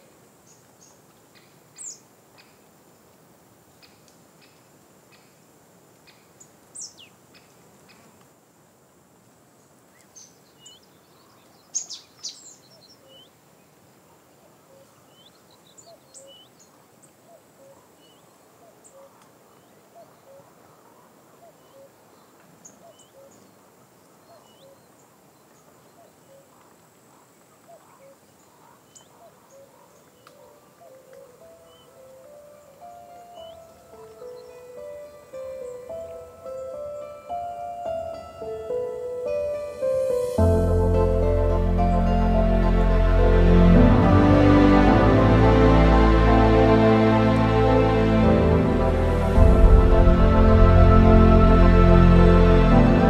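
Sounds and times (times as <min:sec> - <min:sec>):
birds chirping and whistling: 0:30.2 - 0:37.1
low short note repeating: 0:46.6 - 0:53.0.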